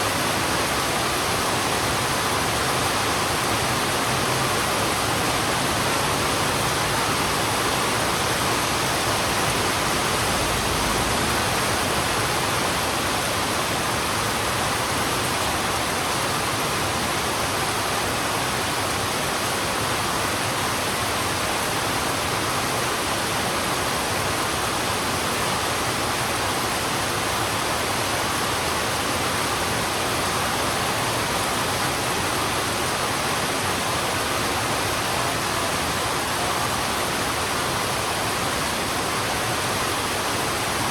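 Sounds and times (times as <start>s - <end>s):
heavy rain on a road: 0.0s - 40.9s.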